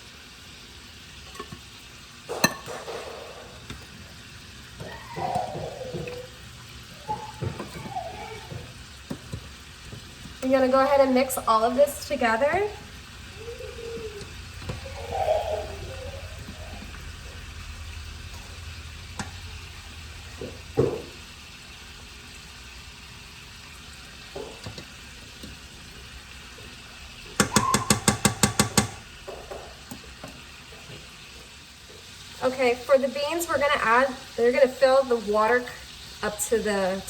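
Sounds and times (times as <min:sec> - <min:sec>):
low sizzle: 0:00.0 - 0:37.0
spoon stirring a pot: 0:01.2 - 0:21.3, 0:23.2 - 0:32.2
spoon knocking against pot: 0:02.3 - 0:03.9, 0:07.1 - 0:10.6, 0:27.3 - 0:30.4.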